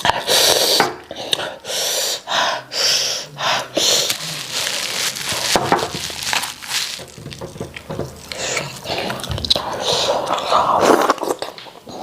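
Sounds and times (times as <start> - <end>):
wet mouth eating sounds: 3.8 - 11.7.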